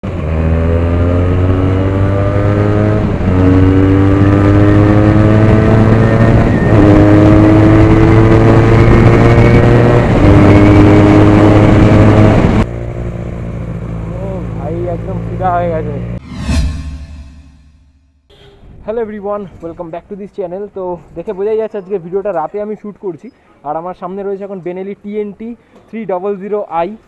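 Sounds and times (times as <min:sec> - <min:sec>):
motorcycle accelerating loud exhaust: 0:00.0 - 0:14.3.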